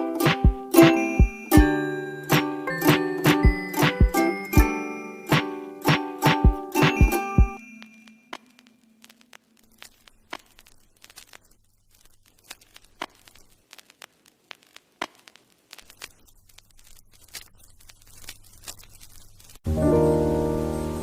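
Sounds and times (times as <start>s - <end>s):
irregular crackling clicks: 7.7s - 19.6s.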